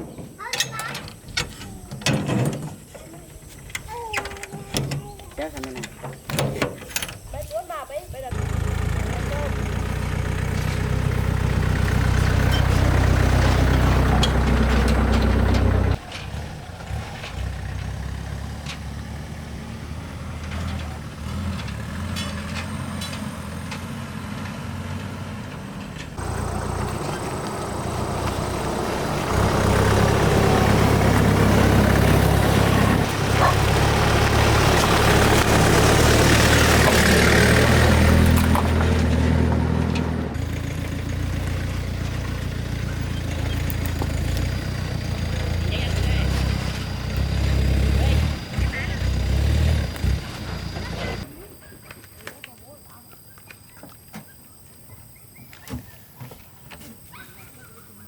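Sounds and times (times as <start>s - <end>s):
engine running: 7.9s - 51.4s.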